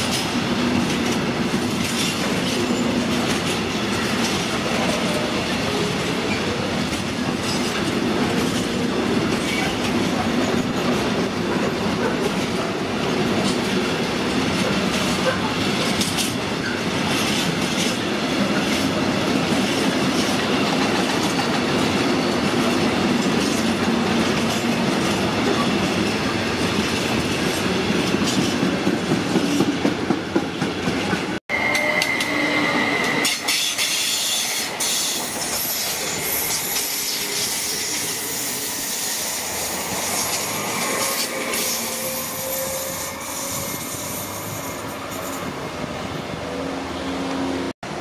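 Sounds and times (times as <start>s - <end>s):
freight train wheels clattering: 0.0s - 32.4s
electric train passing: 0.0s - 48.0s
wheels squealing: 31.5s - 45.5s.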